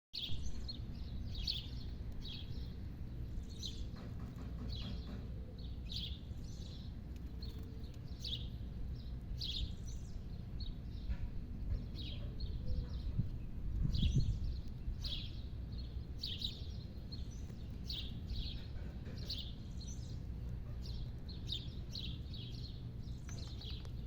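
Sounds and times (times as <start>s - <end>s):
birds chirping: 0.2s - 24.0s
low background rumble: 0.2s - 24.0s.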